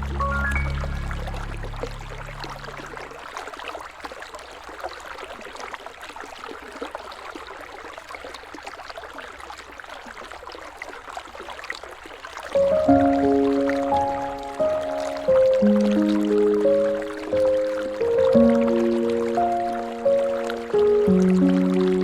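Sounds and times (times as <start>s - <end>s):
water splashing and gurgling: 0.0s - 22.0s
river water rushing: 12.5s - 22.0s.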